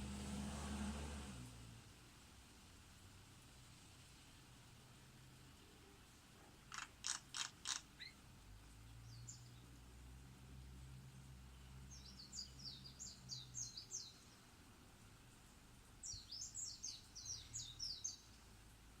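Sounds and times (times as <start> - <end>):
songbird singing chirpy notes: 5.6 - 19.0.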